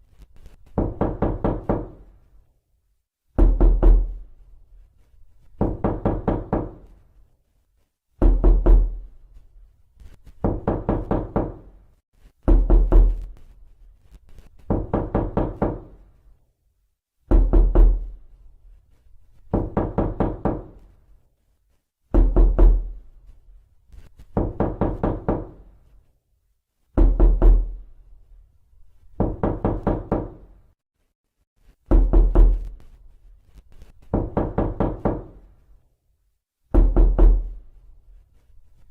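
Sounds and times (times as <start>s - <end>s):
knocking on a door: 0.8s - 2.1s, 3.4s - 4.2s, 5.6s - 6.9s, 8.2s - 9.0s, 10.4s - 11.7s, 12.4s - 13.3s, 14.7s - 16.0s, 17.2s - 18.2s, 19.5s - 20.8s, 22.1s - 23.0s, 24.3s - 25.7s, 27.0s - 27.8s, 29.2s - 30.5s, 31.9s - 32.7s, 34.1s - 35.5s, 36.7s - 37.6s.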